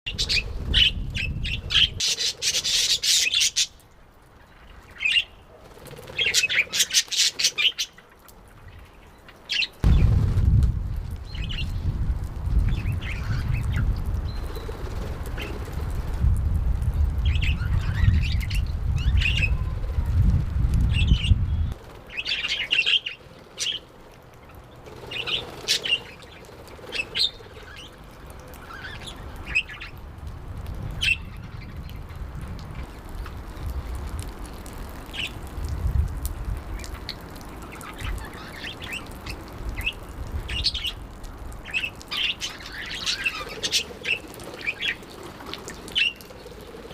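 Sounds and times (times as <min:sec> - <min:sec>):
low rumble: 0:09.8 - 0:12.7.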